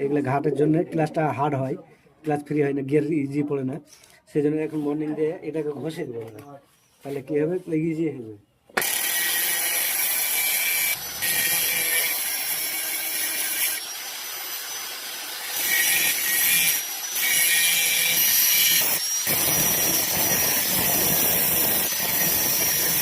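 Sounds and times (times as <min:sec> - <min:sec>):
grinder rasping on metal: 0:08.8 - 0:23.0.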